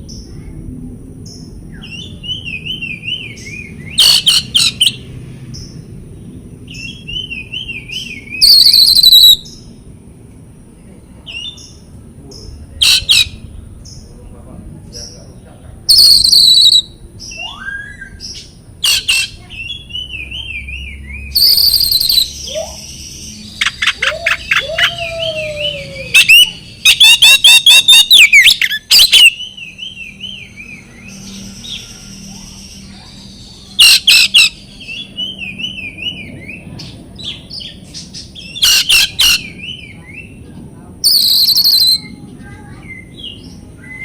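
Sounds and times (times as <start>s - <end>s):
bird trills: 1.9s - 5.0s, 6.7s - 9.6s, 12.8s - 13.4s, 15.9s - 36.2s, 37.3s - 39.9s, 41.0s - 43.1s
bird singing whistled phrases: 6.7s - 9.6s, 15.9s - 36.6s, 41.0s - 42.2s, 42.8s - 44.0s.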